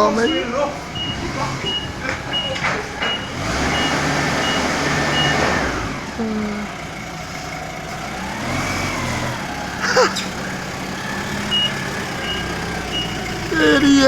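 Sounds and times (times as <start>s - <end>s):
forklift engine whining: 0.0s - 14.0s
reversing beeper: 0.2s - 5.5s, 11.0s - 14.0s.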